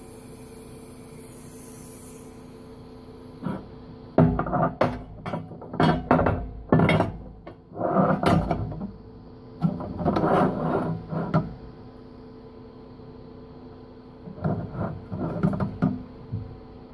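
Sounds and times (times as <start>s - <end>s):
low electrical hum: 0.0s - 16.9s
scraping and rubbing: 7.7s - 8.4s, 9.7s - 11.5s, 14.3s - 15.8s.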